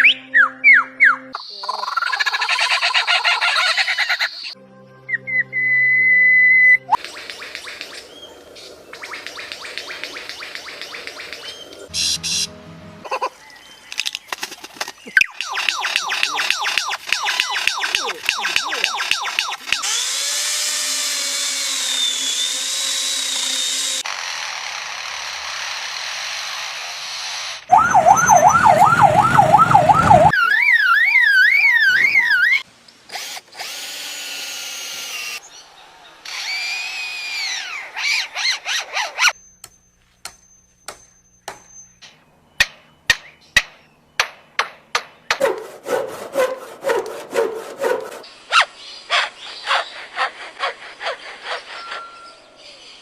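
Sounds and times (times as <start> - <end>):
bird sharp clicks: 7.0 - 11.9, 13.9 - 19.8
bird warbling alarm-like tone: 15.1 - 19.6, 27.7 - 32.6
bird siren-like call: 27.7 - 32.6, 51.4 - 52.6
bird whistled notes: 39.3 - 42.0, 51.4 - 52.5.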